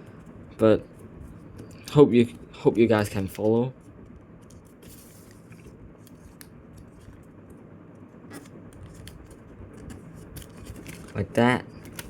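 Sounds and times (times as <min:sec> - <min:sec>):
paper being folded and creased: 0:08.3 - 0:12.0.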